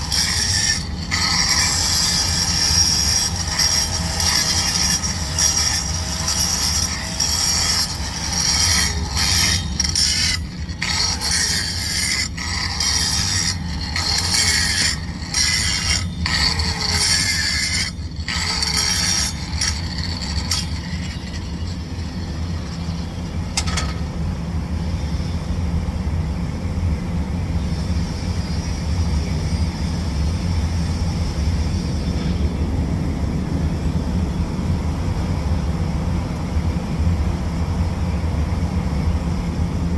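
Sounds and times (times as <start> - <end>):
welding arc crackling hiss: 0.0 - 23.8.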